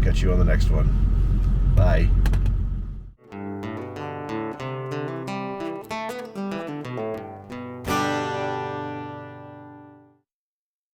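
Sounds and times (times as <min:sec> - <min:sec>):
acoustic guitar picking: 0:03.2 - 0:10.1
strummed guitar chord: 0:03.2 - 0:10.2.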